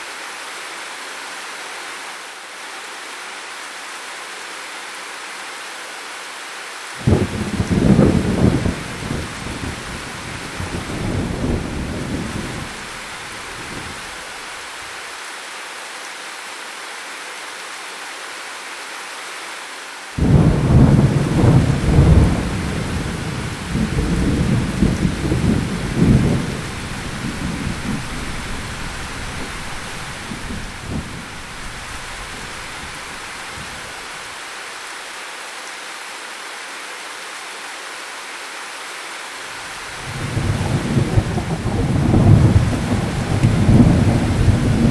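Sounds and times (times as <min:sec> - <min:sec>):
steady rain: 0:00.0 - 0:44.9
loud thunderclap: 0:07.0 - 0:14.1, 0:20.2 - 0:34.0, 0:40.0 - 0:44.9
rumbling thunder: 0:07.0 - 0:14.2, 0:20.2 - 0:34.0, 0:40.0 - 0:44.9.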